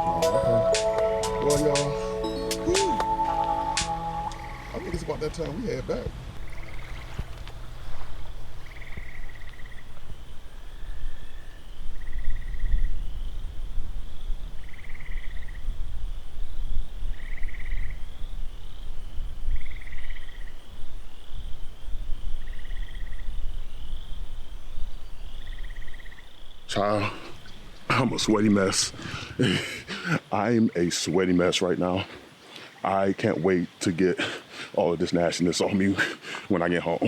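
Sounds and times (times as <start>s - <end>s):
high insect drone: 0.0s - 5.7s, 6.4s - 30.8s.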